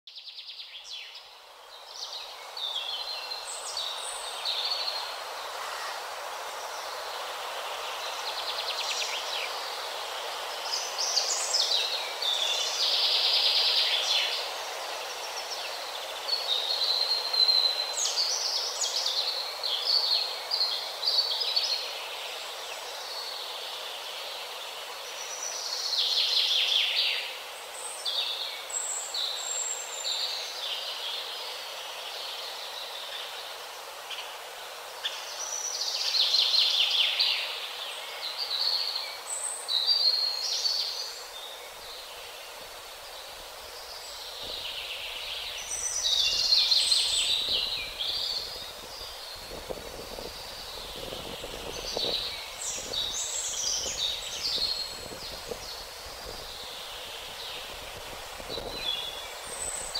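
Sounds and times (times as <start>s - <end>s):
steady background hiss: 0.1s - 59.9s
small birds chirping and trilling: 34.9s - 59.9s.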